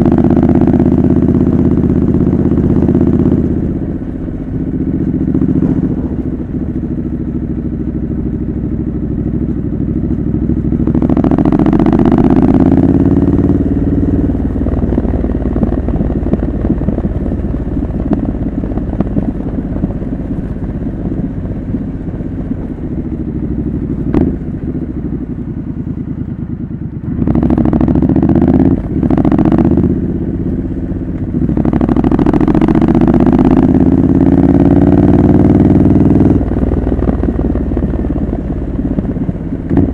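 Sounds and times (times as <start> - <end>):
motorcycle engine revving: 0.0 - 39.9
wind buffeting microphone: 13.6 - 26.0.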